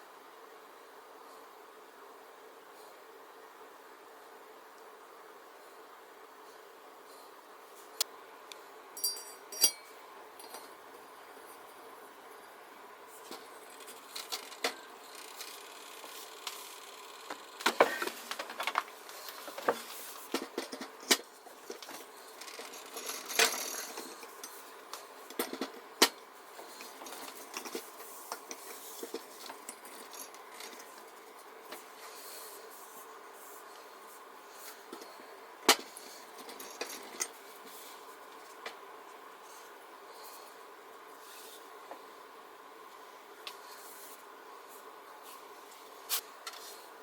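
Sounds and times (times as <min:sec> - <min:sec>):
metal parts and tools clinking: 0:09.0 - 0:10.7, 0:29.1 - 0:30.9, 0:36.4 - 0:37.4.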